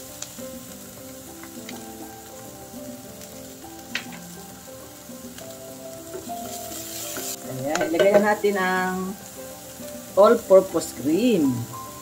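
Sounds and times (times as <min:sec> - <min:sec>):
soft background music: 0:00.0 - 0:12.0
vegetables sizzling in oil: 0:00.0 - 0:12.0
oil popping: 0:05.2 - 0:08.5.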